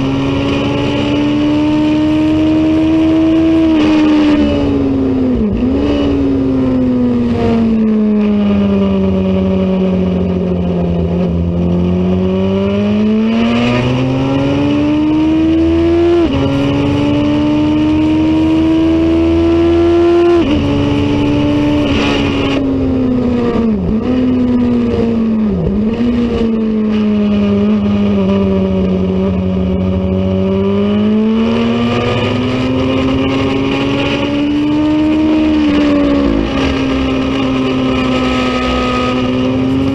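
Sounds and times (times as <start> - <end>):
racing motorcycle engine: 0.0 - 39.9.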